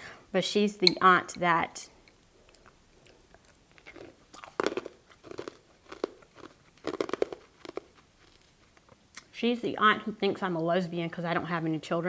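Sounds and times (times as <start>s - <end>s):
chewing crisp cucumber: 2.1s - 9.3s.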